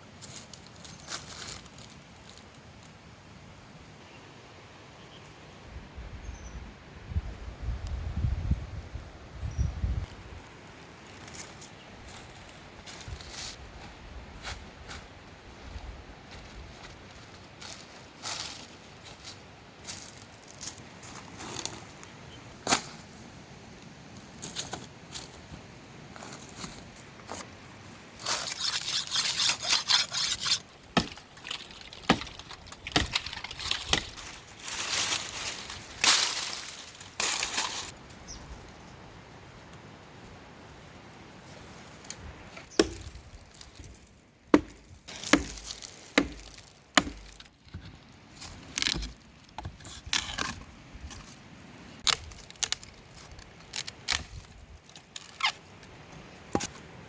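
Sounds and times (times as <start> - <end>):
rustling or scraping: 15.7 - 23.1, 24.3 - 38.0.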